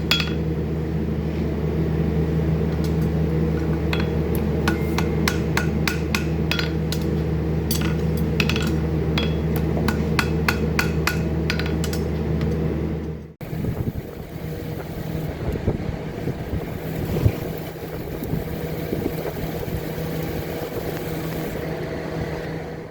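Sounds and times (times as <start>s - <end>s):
low machine hum: 0.0s - 22.9s
hammer ringing on metal: 4.6s - 6.8s.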